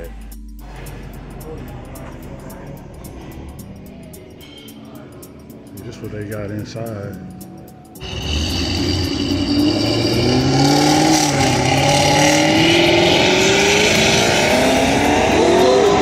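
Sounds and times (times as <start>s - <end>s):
car engine accelerating hard: 8.0s - 16.0s.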